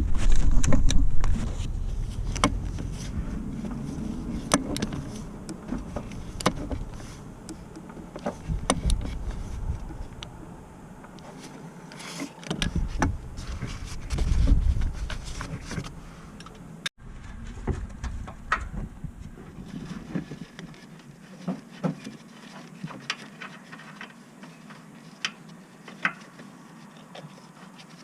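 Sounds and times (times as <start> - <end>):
low rumbling noise: 0.0 - 20.1.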